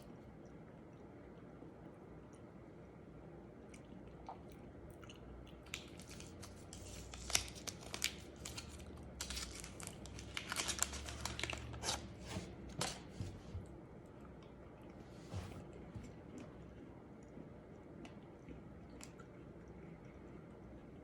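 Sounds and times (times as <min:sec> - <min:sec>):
plastic wrapper crinkling and tearing: 0:05.7 - 0:13.1.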